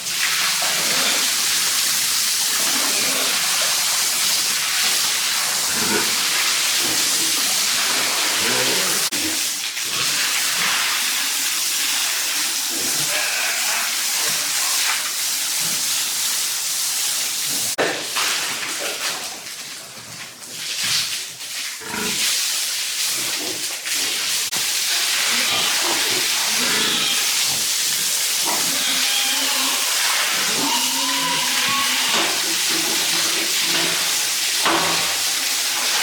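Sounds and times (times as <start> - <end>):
pigs grunting: 0.6 - 1.6, 2.5 - 3.9, 5.6 - 10.2, 12.6 - 14.8, 21.8 - 22.3, 25.0 - 34.4.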